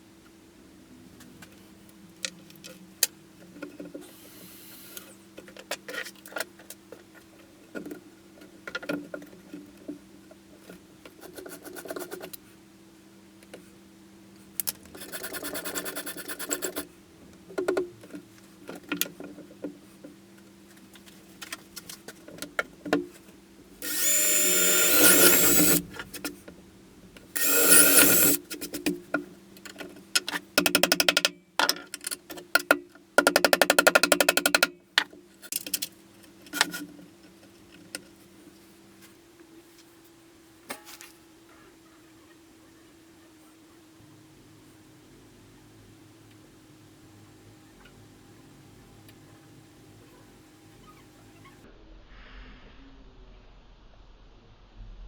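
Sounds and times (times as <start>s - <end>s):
steady low hum: 12.4s - 30.6s
power tool running: 23.8s - 25.9s, 27.4s - 28.4s.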